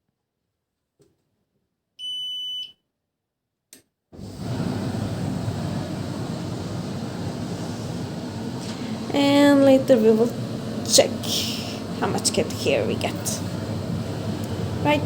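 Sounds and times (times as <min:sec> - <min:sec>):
tumble dryer running: 0:04.2 - 0:15.0.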